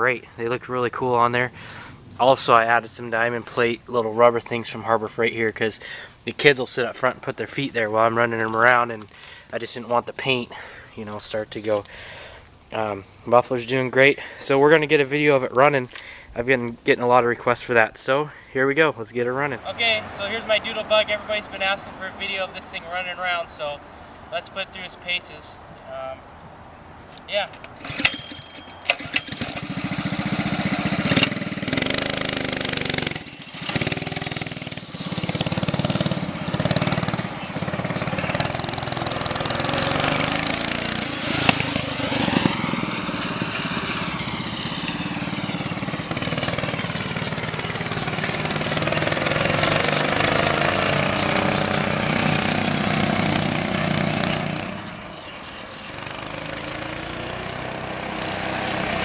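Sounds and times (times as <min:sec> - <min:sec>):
mini bike engine revving: 0:27.7 - 0:55.0, 0:55.8 - 0:59.0.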